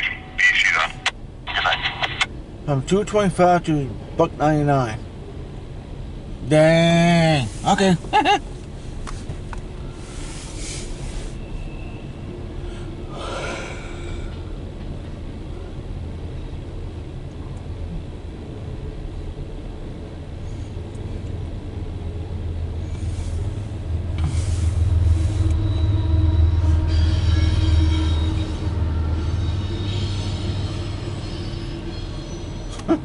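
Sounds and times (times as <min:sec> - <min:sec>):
diesel locomotives rumbling: 0:00.0 - 0:33.0
steady high-pitched tones: 0:22.8 - 0:32.8.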